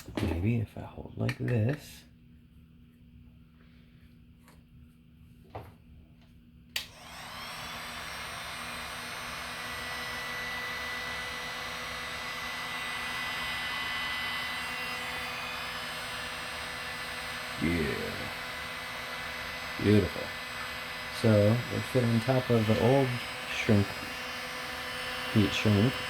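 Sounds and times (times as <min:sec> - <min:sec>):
hot-air blower whining: 0:06.7 - 0:26.0.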